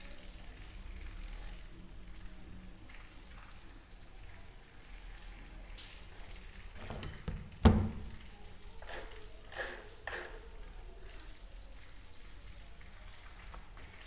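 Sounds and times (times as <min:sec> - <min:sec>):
metal tools scraping: 0:08.8 - 0:10.5.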